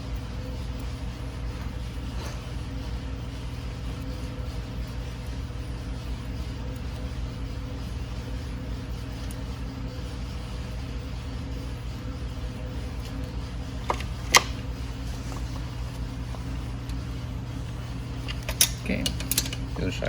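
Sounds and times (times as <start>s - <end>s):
metal tools clicking on bolt: 18.3s - 19.6s.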